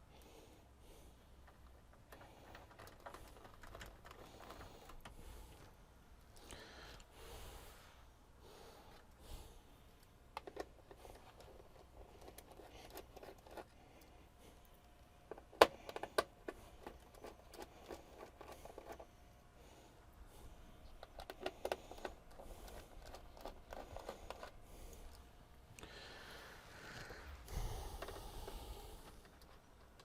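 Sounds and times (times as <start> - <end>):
clicks and taps of handled objects: 10.3 - 14.1, 14.7 - 19.0, 20.9 - 25.2.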